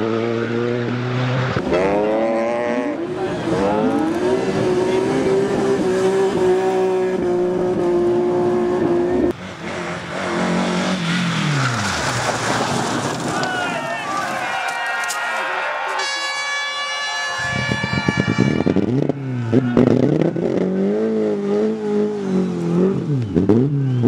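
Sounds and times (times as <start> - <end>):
rally car engine revving: 0.0 - 13.6, 18.6 - 24.0.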